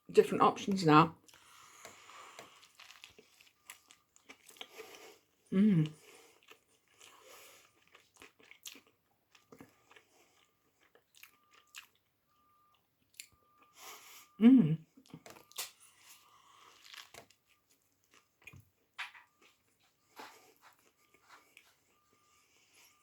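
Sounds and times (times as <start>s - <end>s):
chewing crunchy sandwich: 1.2s - 14.1s, 15.0s - 23.0s.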